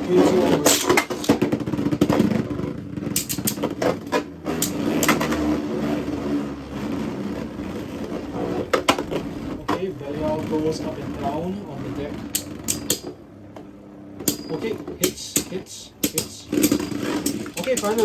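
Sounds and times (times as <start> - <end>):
tops clicking on impact: 12.2 - 18.0
spinning tops whirring: 14.3 - 18.0.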